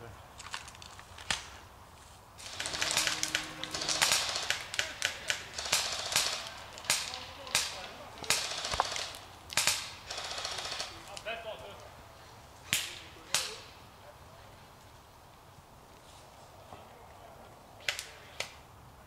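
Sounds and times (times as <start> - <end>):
airsoft guns firing: 2.4 - 11.2.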